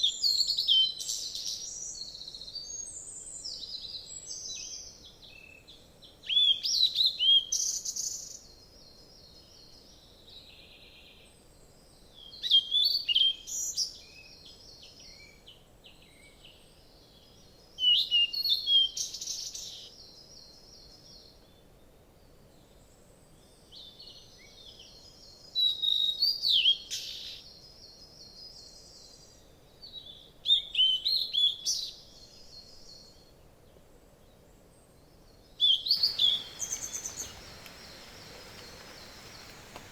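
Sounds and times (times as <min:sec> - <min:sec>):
faint forest background noise: 0:00.0 - 0:39.9
songbird chirping and trilling: 0:35.6 - 0:39.9.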